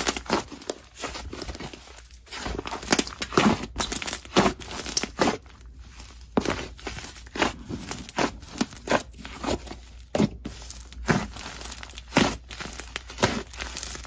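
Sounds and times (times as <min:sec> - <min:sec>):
slime squishing and crackling: 0:00.0 - 0:14.0.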